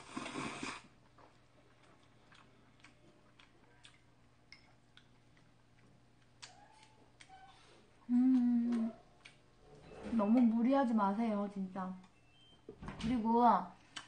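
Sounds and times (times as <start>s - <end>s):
noodle slurp: 0.0s - 1.0s
quiet chewing clicks: 1.0s - 9.6s, 12.0s - 12.2s.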